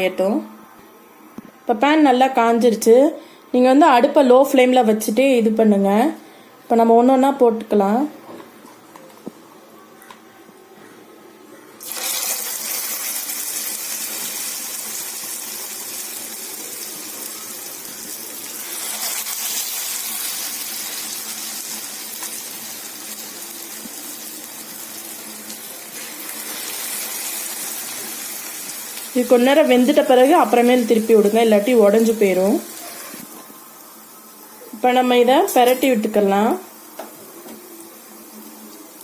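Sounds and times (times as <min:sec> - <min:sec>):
hot oil sizzling in a frying pan: 0:11.8 - 0:39.0.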